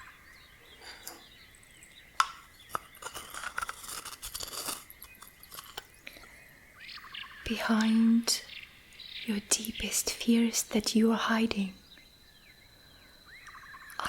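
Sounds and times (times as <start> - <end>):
crisp crackling and clicking: 2.2 - 6.3.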